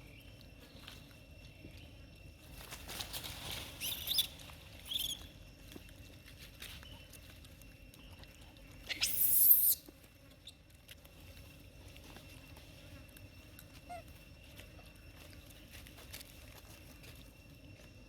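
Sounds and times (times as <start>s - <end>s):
monkeys squealing: 8.9s - 9.8s.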